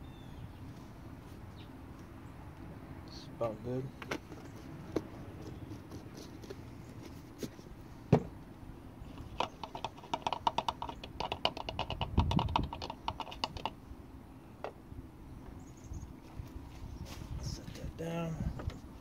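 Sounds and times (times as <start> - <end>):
low thud: 8.1 - 8.4
rapid small clicks: 9.1 - 13.8.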